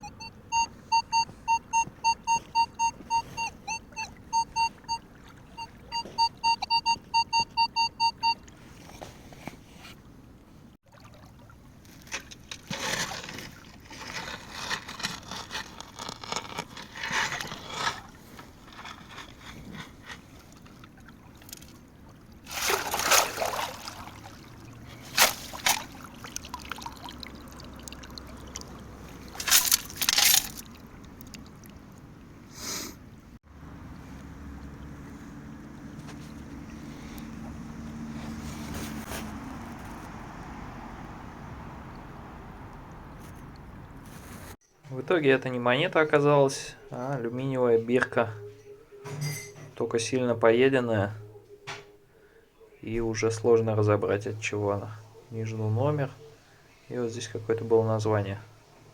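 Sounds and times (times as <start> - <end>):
metal detector beeping rapidly: 0.0 - 8.4
water splashing: 3.7 - 6.7, 10.8 - 16.0, 20.3 - 32.4
water pouring off: 22.4 - 29.8.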